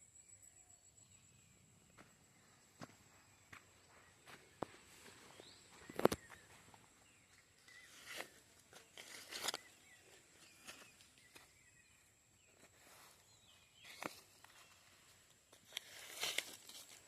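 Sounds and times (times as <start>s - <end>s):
footsteps on forest floor: 2.0s - 17.0s.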